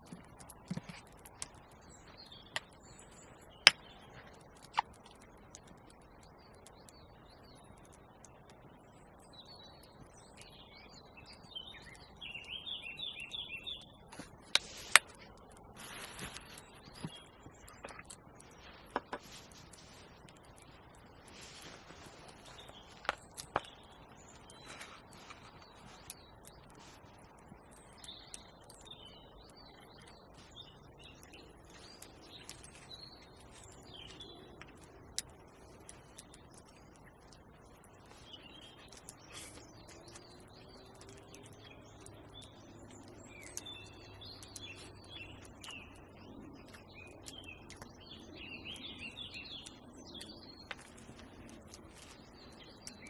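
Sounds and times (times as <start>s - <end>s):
songbird chirping: 0.0s - 53.0s
rustling scrape: 15.8s - 17.2s, 21.2s - 23.1s.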